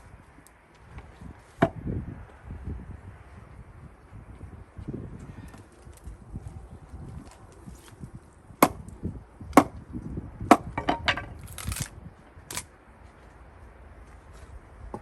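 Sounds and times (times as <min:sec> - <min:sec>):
axe chopping wood: 0:08.6 - 0:08.9, 0:09.5 - 0:09.8, 0:10.5 - 0:11.8.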